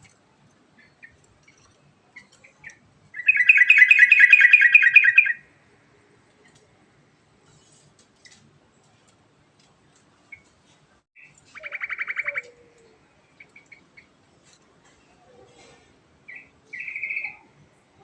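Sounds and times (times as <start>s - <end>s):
bird chirps and trill: 0.8s - 5.4s, 11.2s - 12.6s, 16.3s - 17.5s.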